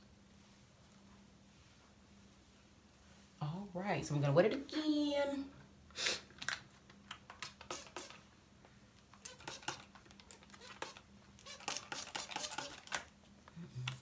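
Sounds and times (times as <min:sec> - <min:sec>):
spray bottle spritzing water: 0:07.4 - 0:08.2, 0:09.2 - 0:13.0
spray bottle trigger clicks: 0:07.4 - 0:08.2, 0:09.2 - 0:13.1.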